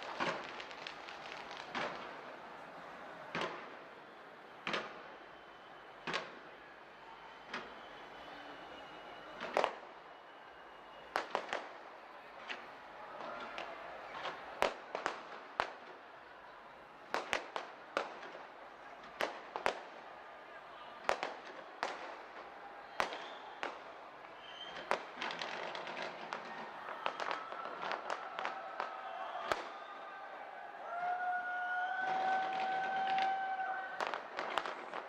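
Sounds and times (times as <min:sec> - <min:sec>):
fireworks bursting: 0:00.0 - 0:06.5, 0:11.0 - 0:16.1, 0:17.0 - 0:20.2, 0:21.0 - 0:29.9, 0:32.0 - 0:35.0.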